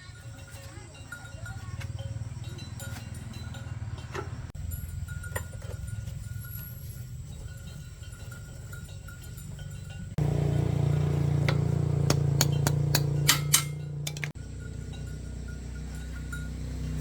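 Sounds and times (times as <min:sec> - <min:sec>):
sharp metallic clinks: 0:00.0 - 0:17.0
low machine hum: 0:10.2 - 0:14.8.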